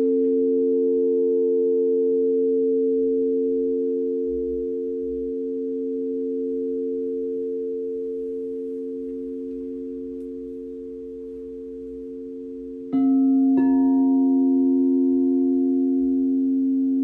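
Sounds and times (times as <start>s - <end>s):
singing bowls ringing: 0.0s - 17.0s.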